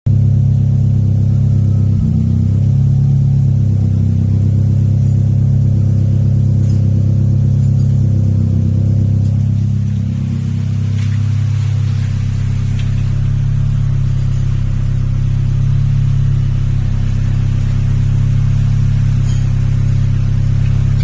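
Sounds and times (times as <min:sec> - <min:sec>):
car engine idling: 0:00.1 - 0:21.0.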